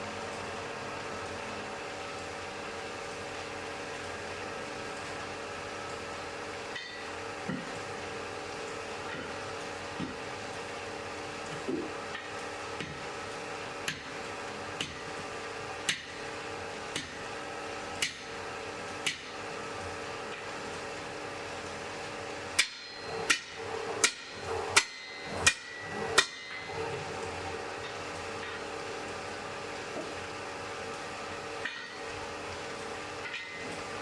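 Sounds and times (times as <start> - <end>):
hammer striking anvil: 6.8 - 7.6, 18.0 - 18.3, 22.6 - 26.8.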